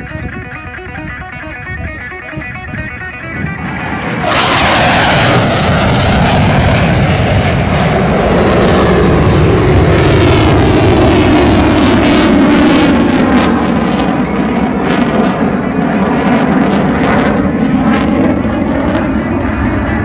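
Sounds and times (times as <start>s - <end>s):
jet engines roaring in flyby: 2.5s - 20.0s.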